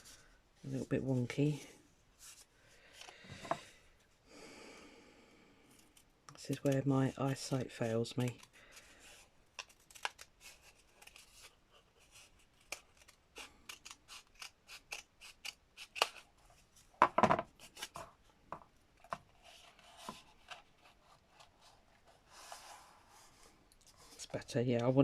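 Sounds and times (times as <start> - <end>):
scissors snipping: 12.6 - 16.3.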